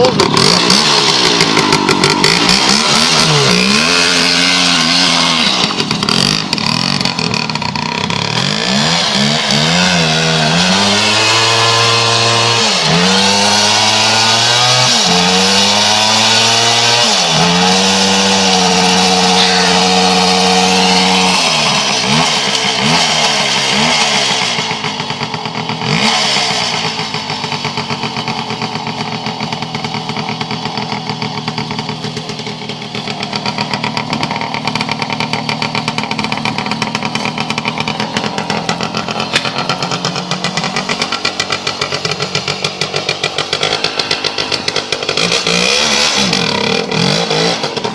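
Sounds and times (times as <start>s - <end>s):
two-stroke motorcycle engine revving: 0.0s - 47.9s.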